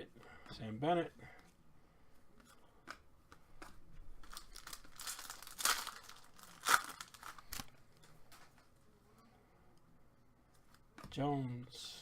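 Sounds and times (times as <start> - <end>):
wrapper crinkling and tearing: 4.2 - 7.7.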